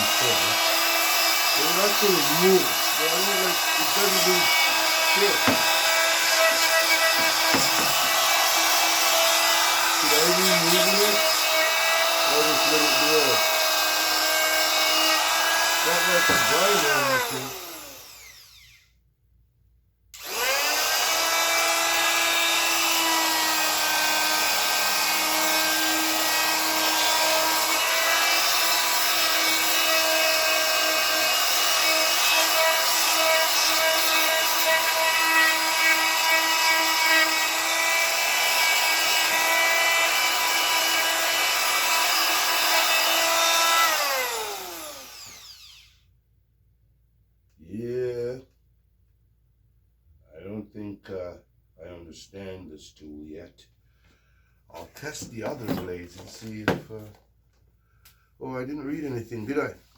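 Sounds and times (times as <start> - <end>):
power tool motor whine: 0.0 - 18.9, 20.2 - 46.0.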